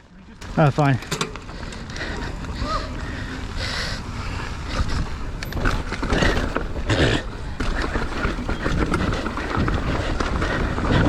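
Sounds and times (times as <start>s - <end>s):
mountain bike rattling: 0.0s - 11.0s
wind on microphone: 4.2s - 11.0s.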